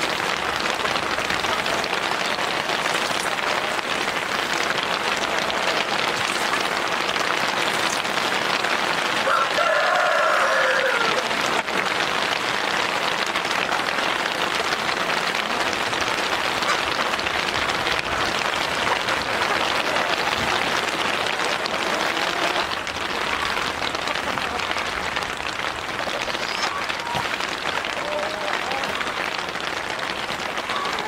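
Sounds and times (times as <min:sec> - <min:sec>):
rain pattering: 0:00.0 - 0:31.0
rooster crowing: 0:09.2 - 0:11.3.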